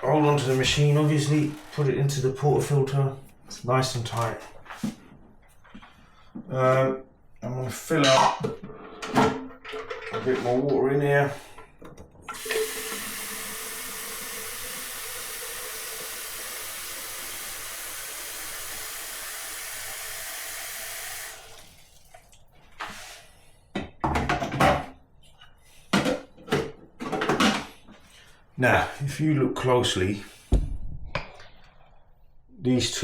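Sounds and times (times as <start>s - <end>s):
tap water running: 12.3s - 22.7s
sharp knocks and clunks: 30.5s - 31.3s.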